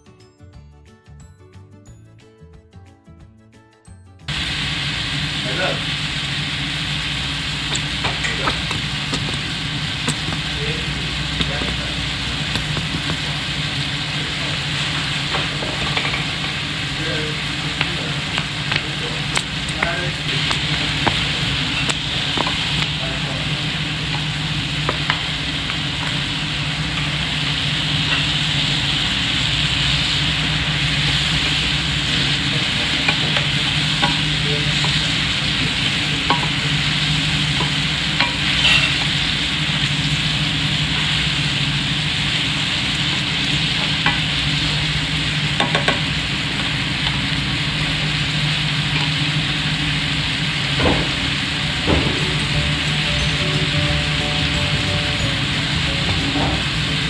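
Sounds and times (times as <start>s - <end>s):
rice sizzling in a frying pan: 4.3s - 57.0s
spatula scraping and tapping pan: 18.7s - 22.9s, 37.6s - 39.1s.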